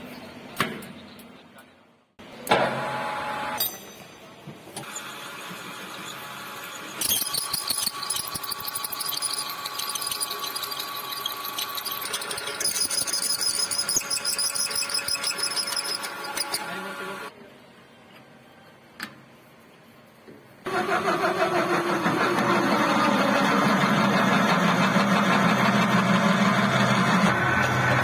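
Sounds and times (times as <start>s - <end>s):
metal lathe running: 5.0s - 17.3s, 20.7s - 28.0s
high-pitched squealing: 7.0s - 16.9s.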